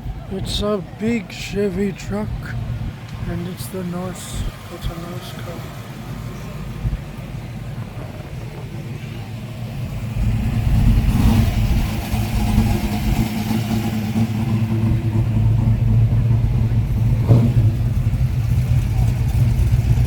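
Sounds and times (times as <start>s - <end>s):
car engine running at low revs: 0.0s - 20.0s.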